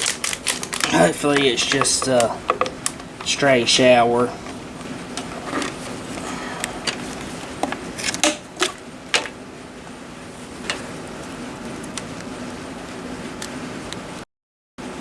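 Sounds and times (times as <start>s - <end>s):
plastic parts clicking: 0.0s - 3.4s.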